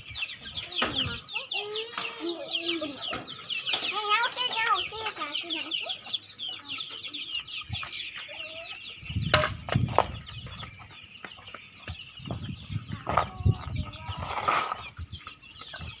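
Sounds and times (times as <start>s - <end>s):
chickens clucking: 0.0s - 16.0s
dull knocks and scuffs: 9.2s - 13.4s.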